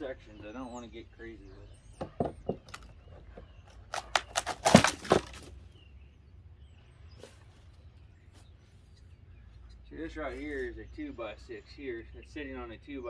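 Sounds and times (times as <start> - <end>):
hammer knocking on wooden boards: 2.0 - 3.4.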